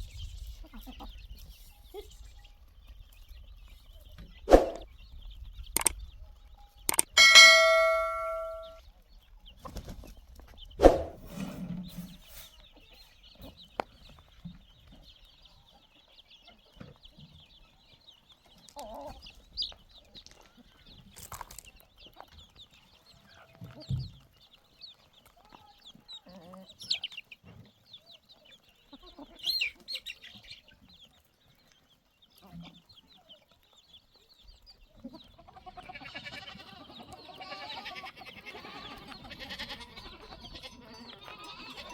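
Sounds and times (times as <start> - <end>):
chirps: 0.0 - 9.8
chickens clucking: 0.4 - 6.1, 6.9 - 41.9
livestock bleating: 35.4 - 41.9.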